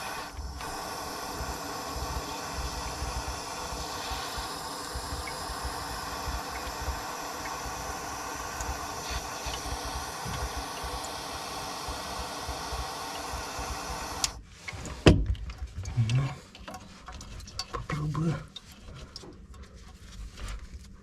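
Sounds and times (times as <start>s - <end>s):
heating tool blowing: 0.0s - 15.1s.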